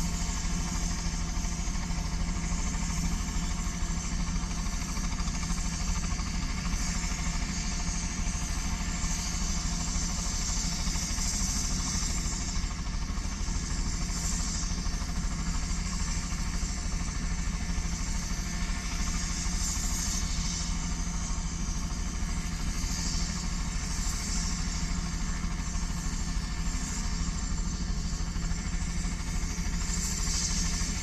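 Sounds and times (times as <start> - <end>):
helicopter rotor pulsing: 0.0 - 31.0
hiss: 18.0 - 28.2, 29.0 - 31.0.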